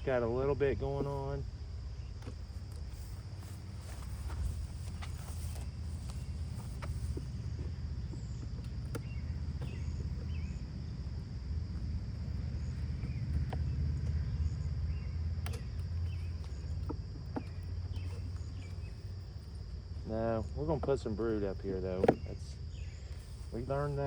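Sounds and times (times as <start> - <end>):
high insect trill: 0.0 - 24.0
light clicks and knocks: 2.0 - 10.6.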